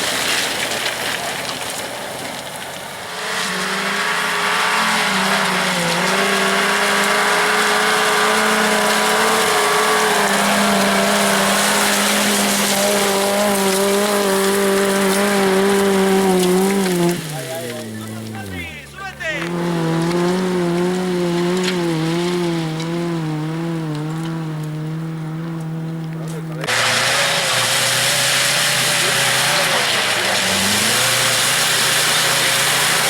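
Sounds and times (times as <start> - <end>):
off-road vehicle engine revving: 0.0 - 33.0
tyres hissing on loose stone: 26.6 - 33.0.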